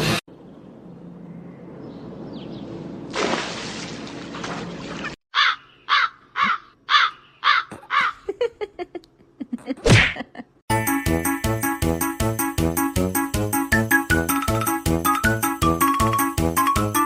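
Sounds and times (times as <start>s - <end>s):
bird harsh calls: 5.3s - 8.3s.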